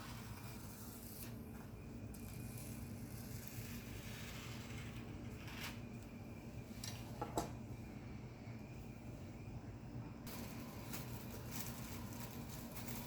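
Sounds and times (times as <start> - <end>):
low steady hum: 0.0 - 13.0
plastic wrap crinkling and tearing: 10.3 - 13.0.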